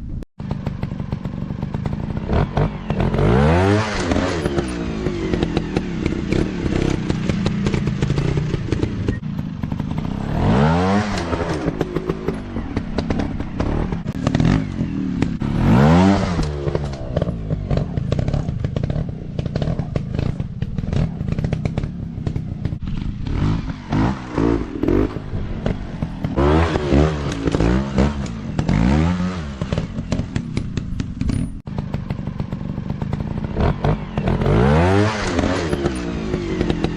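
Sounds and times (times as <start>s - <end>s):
dirt bike engine revving: 0.4s - 36.9s.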